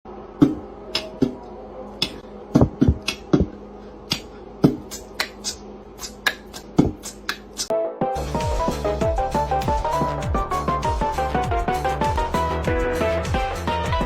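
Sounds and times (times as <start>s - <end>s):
faint steady hum: 0.1s - 7.7s.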